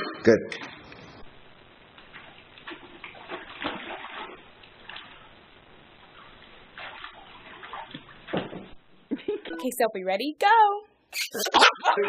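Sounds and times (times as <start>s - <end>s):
water splashing and sloshing: 2.0s - 8.8s.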